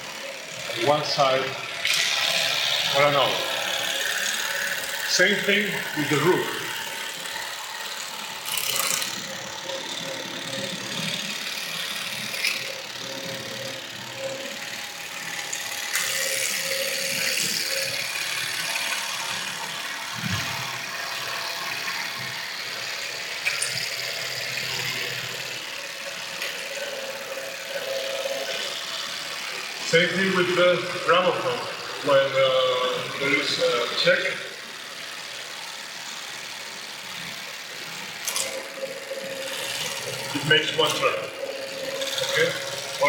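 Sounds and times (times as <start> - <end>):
mechanical whirr and rattle: 0.0 - 43.0
sharp mechanical clicks: 1.8 - 13.8, 38.2 - 43.0.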